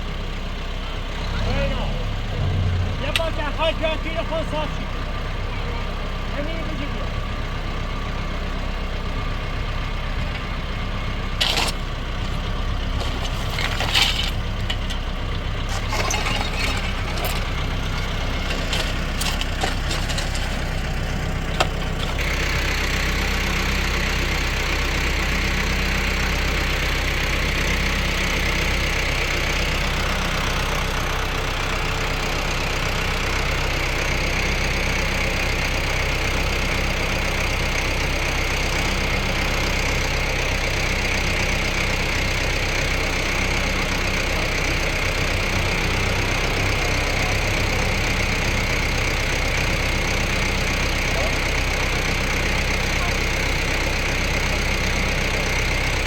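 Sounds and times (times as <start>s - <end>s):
tractor engine running: 0.0s - 56.0s
knocks and clatter: 11.4s - 15.1s, 15.7s - 22.2s.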